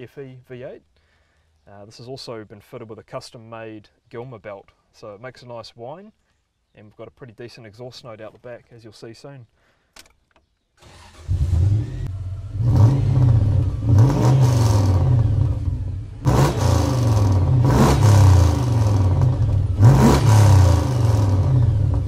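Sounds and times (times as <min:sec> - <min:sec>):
engine cranking and starting: 0:10.8 - 0:15.2
engine idling and revving: 0:10.9 - 0:22.0.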